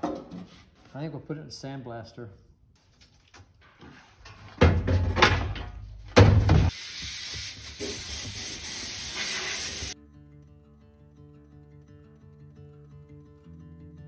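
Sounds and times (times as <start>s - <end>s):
sandblaster blasting: 6.7s - 10.0s
acoustic guitar music: 10.0s - 14.0s.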